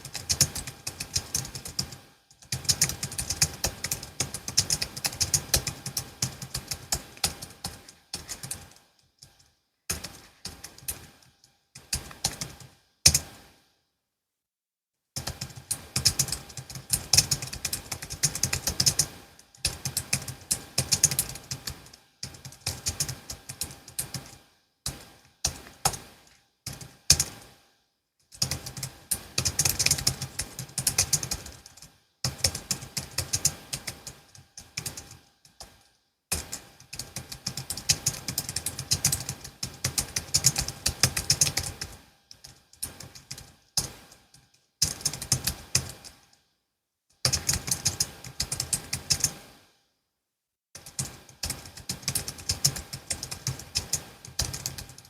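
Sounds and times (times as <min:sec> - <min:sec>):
keyboard keys clicking: 0:44.8 - 0:46.1, 0:50.8 - 0:55.0.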